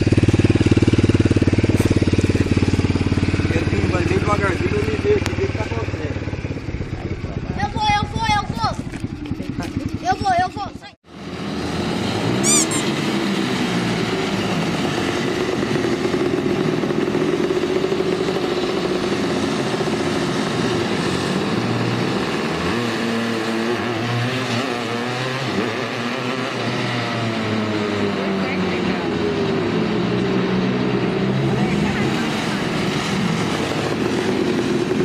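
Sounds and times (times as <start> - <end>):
small petrol engine revving: 0.0 - 35.0.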